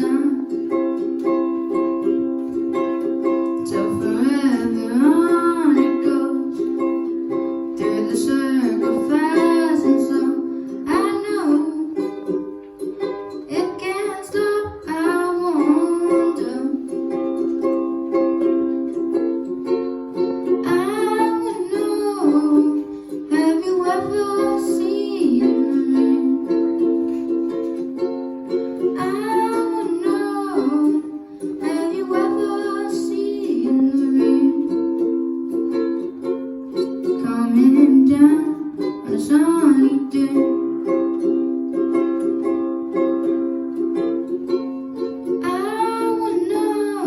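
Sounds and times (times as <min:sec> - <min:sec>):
person singing: 0:00.0 - 0:00.8, 0:03.6 - 0:06.7, 0:07.8 - 0:12.3, 0:13.5 - 0:17.0, 0:20.6 - 0:27.0, 0:28.8 - 0:35.1, 0:37.0 - 0:40.7, 0:45.3 - 0:47.0
ukulele strumming: 0:00.0 - 0:47.0.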